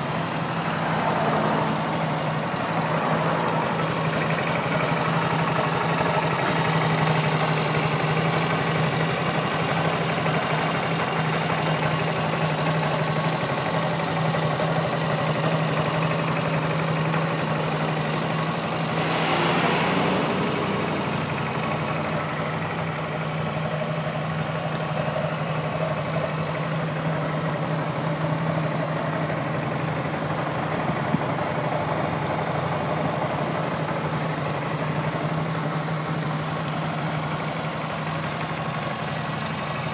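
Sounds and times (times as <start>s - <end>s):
motorcycle engine idling: 0.0s - 39.9s
rush of noise: 18.7s - 22.7s.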